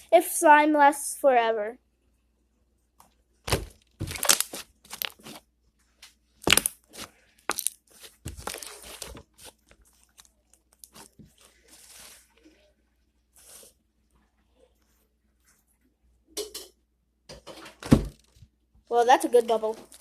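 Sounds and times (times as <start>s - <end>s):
slime squishing with wet pops: 3.4s - 12.4s.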